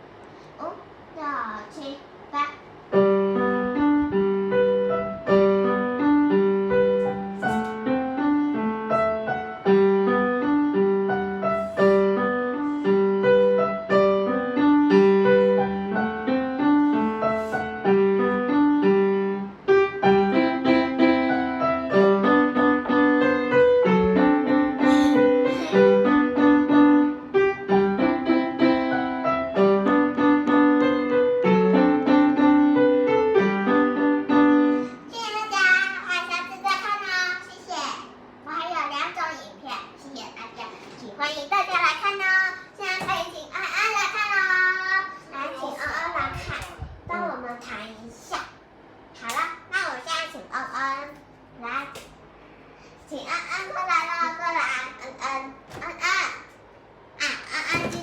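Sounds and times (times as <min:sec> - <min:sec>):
gentle piano piece: 0:02.7 - 0:38.4.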